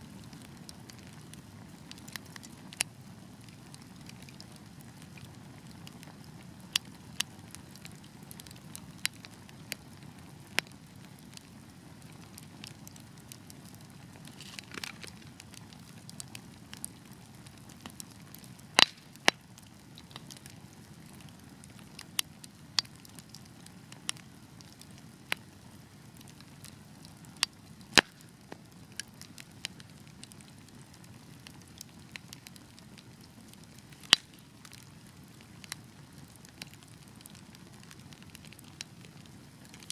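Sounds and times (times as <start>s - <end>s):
fire crackling in a fireplace: 0.0s - 39.9s
fire hissing: 13.9s - 15.8s.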